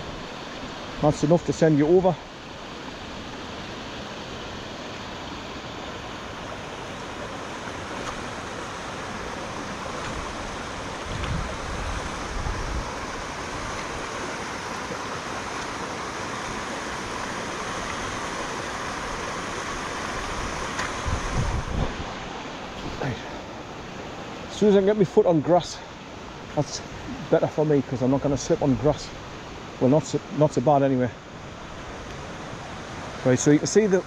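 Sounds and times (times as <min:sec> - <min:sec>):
fast-flowing river rushing: 0:00.0 - 0:34.0.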